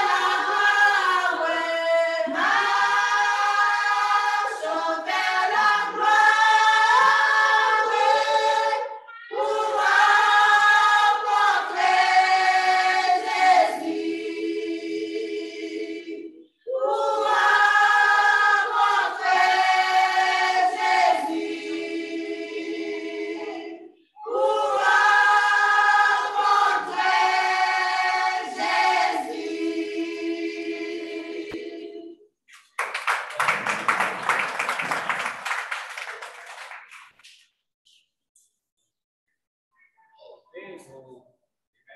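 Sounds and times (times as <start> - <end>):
choir singing a hymn: 0.0 - 32.2
people clapping: 32.5 - 37.6.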